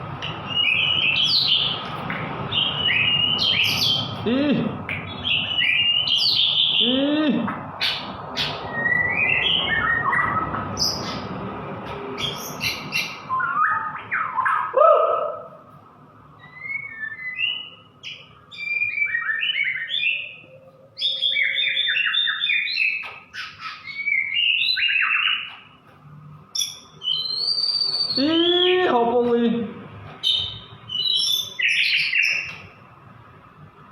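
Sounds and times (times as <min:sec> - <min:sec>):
bird singing whistles and chirps: 0:00.2 - 0:01.8, 0:02.5 - 0:04.1, 0:05.0 - 0:07.0, 0:08.4 - 0:11.2, 0:12.2 - 0:15.4, 0:16.4 - 0:25.6, 0:26.6 - 0:28.8, 0:30.2 - 0:32.6.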